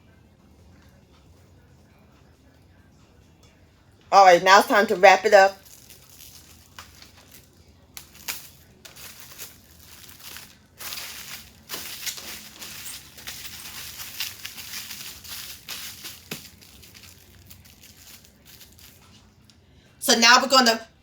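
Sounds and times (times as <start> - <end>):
plastic wrap crinkling: 5.5 - 19.2.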